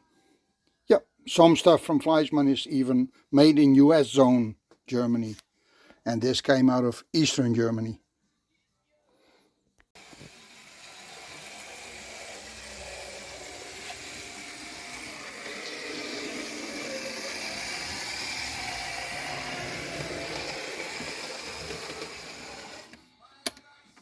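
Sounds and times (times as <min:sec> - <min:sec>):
toy locomotive motor whirring: 0:10.0 - 0:23.0.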